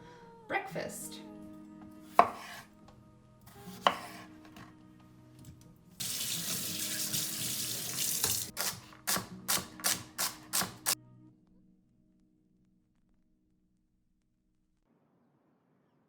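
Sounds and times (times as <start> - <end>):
tap running into a sink: 6.0 - 8.5.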